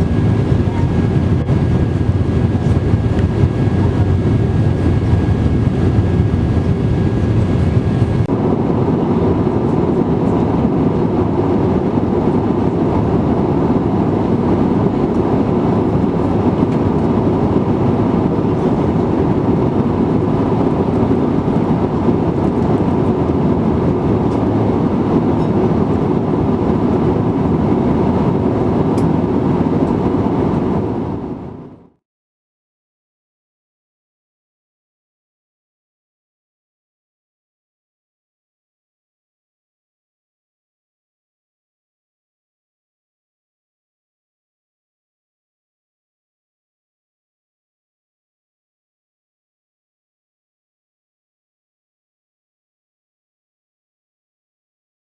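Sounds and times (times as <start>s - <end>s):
thin steady whine: 0.0s - 11.4s
aircraft cabin engine rumble: 0.0s - 31.9s.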